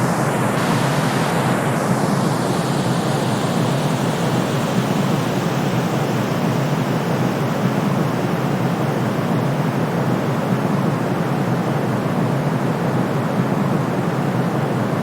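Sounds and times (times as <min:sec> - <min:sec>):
deep white noise: 0:00.0 - 0:10.7.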